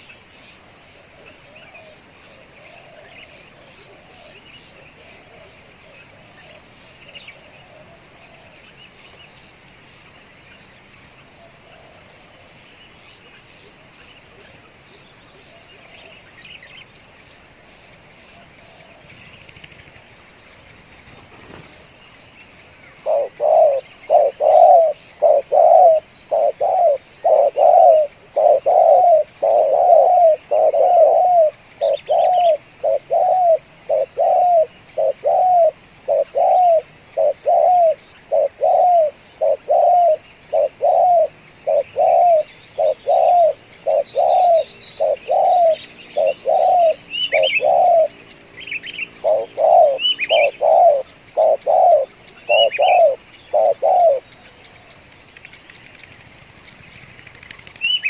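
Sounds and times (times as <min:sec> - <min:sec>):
high insect drone: 0:00.0 - 0:58.0
dove cooing: 0:01.1 - 0:06.8, 0:07.4 - 0:08.7, 0:23.0 - 0:48.2, 0:49.1 - 0:55.0.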